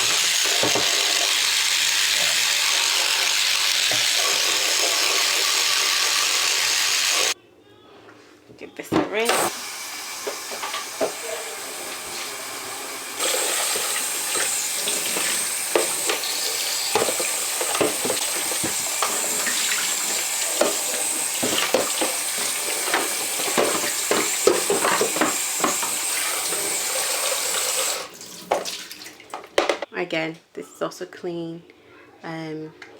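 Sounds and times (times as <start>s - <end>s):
tap water running: 0.0s - 7.4s, 9.2s - 29.8s
plastic caddy knocking: 16.9s - 26.0s.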